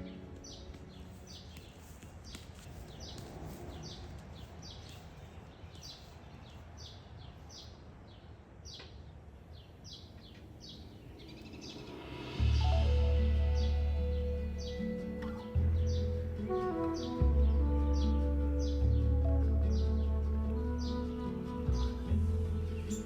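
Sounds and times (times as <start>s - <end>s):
songbird chirping: 0.0s - 23.0s.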